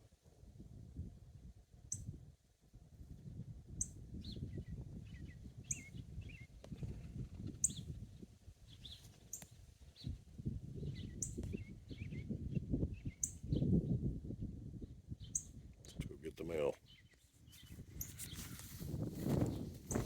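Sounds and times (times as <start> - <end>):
wind rumble on microphone: 0.0 - 20.0
songbird singing: 3.8 - 8.0, 8.7 - 10.2, 10.8 - 14.1, 14.8 - 20.0.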